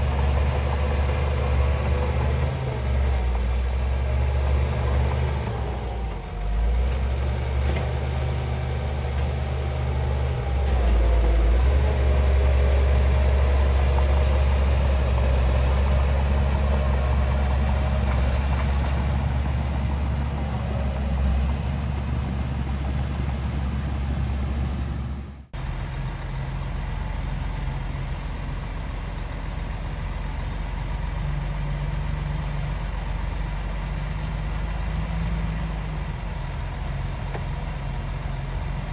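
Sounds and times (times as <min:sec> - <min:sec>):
diesel earthmoving machinery running: 0:00.0 - 0:38.9
steady engine sound: 0:00.0 - 0:38.9.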